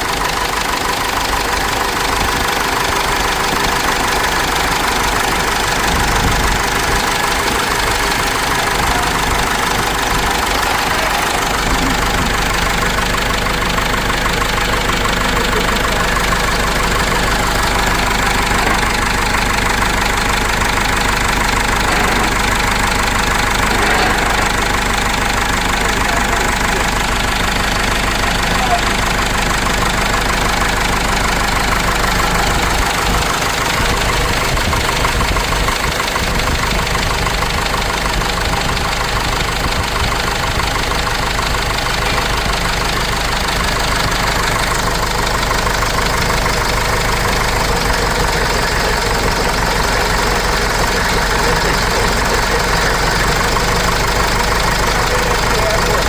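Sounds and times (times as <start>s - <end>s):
diesel engine running steadily: 0.0s - 56.0s.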